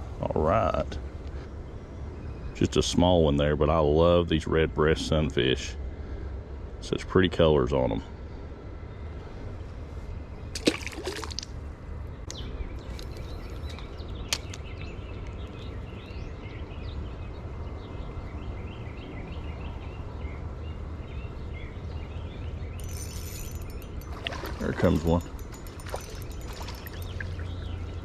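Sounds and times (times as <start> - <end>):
creek water trickling: 10.4 - 11.7, 12.3 - 16.1, 22.8 - 28.0
water splash: 10.6 - 11.5, 23.4 - 27.6.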